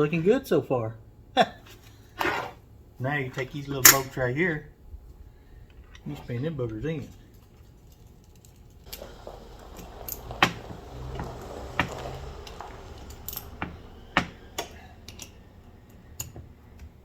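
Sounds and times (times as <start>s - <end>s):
metallic clicks of tool and parts: 14.6s - 16.9s.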